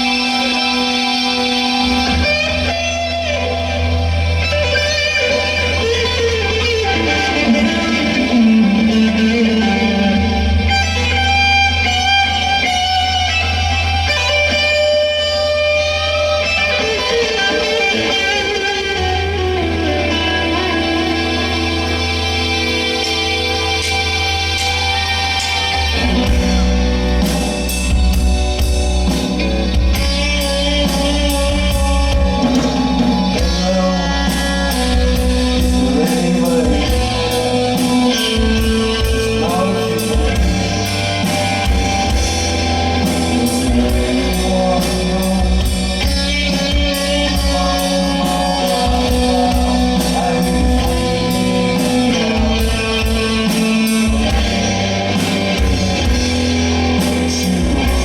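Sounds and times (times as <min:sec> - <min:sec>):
bass guitar: 0:00.0 - 0:58.0
electric guitar: 0:00.0 - 0:58.0
drum kit beat: 0:19.0 - 0:58.0
person singing: 0:29.1 - 0:58.0.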